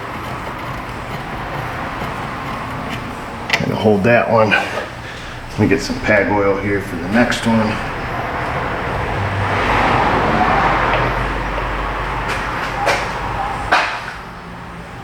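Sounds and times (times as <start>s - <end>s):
rushing noise with low rumble: 5.2s - 14.2s.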